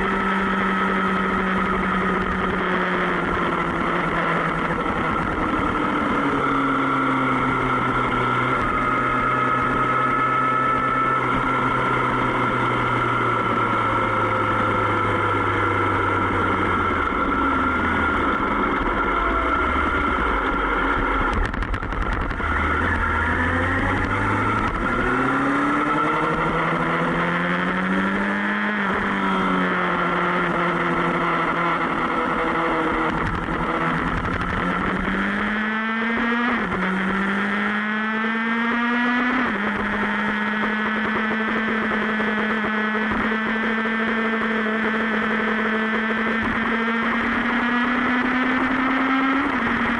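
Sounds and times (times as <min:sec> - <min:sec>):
motorcycle engine: 0:00.0 - 0:49.9.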